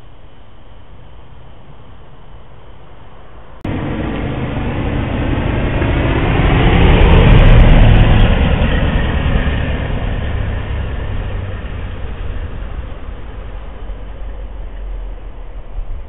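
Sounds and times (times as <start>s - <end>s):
car engine running: 3.6s - 14.7s.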